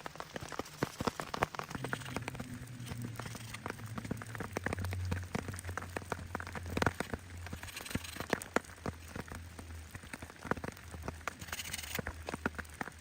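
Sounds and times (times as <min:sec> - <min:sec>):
raindrops ticking on a surface: 0:00.0 - 0:13.0
steady low rumble: 0:01.8 - 0:09.9.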